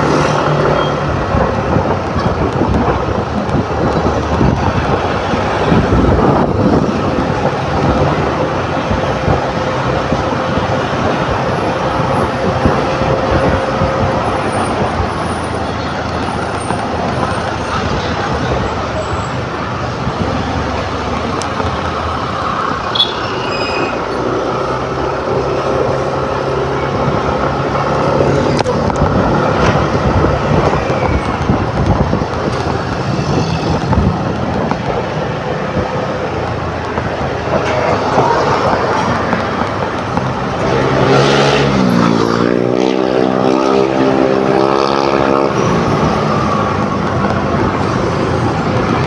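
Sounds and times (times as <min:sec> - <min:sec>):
rushing air: 0:00.0 - 0:49.0
vehicles passing: 0:00.0 - 0:49.0.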